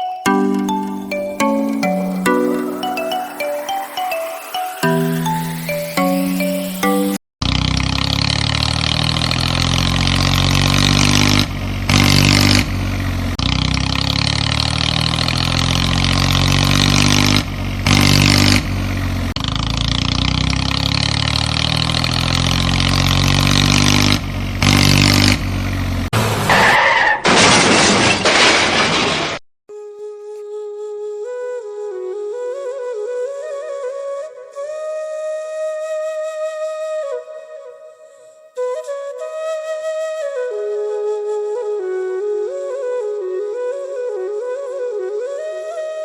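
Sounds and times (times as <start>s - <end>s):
tractor engine running: 7.4s - 26.4s.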